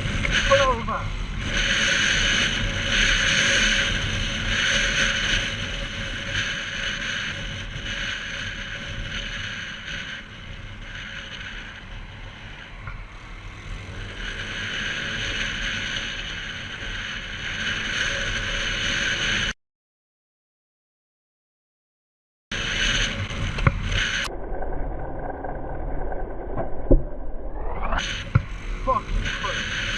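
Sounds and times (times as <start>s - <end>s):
motorcycle rumble: 0.0s - 19.6s, 22.5s - 29.9s
wind rush: 22.6s - 29.9s.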